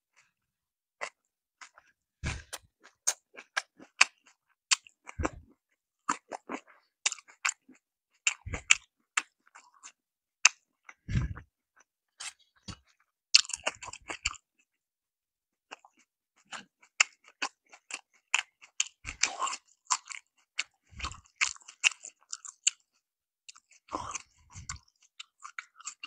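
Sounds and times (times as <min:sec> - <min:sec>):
crisp chewing of fried food: 0:01.0 - 0:14.8, 0:15.6 - 0:26.0.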